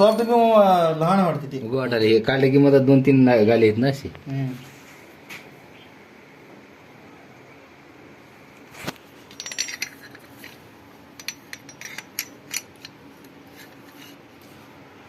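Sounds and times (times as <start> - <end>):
metal tools clinking: 9.3 - 10.6, 11.2 - 14.2.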